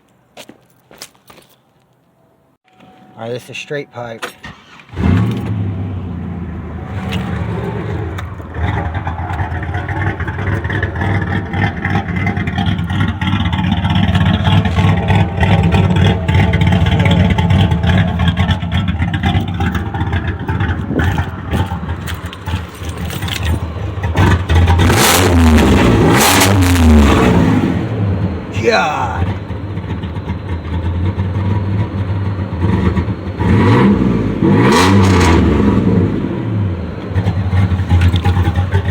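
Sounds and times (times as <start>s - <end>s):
car exhaust revving: 4.9s - 38.9s.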